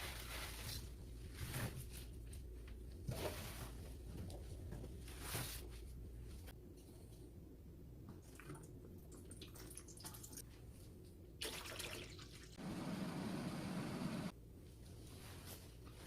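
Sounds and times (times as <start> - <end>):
faint kitchen sounds: 0.0 - 12.6, 14.3 - 16.0
water pouring: 11.4 - 12.6.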